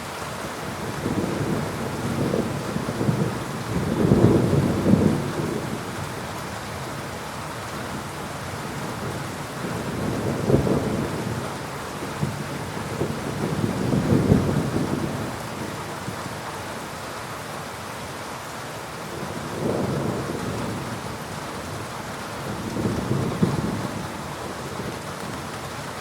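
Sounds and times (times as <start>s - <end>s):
steady rain: 0.0s - 26.0s
thunder rumbling: 0.9s - 6.0s, 8.8s - 16.2s, 19.2s - 25.8s.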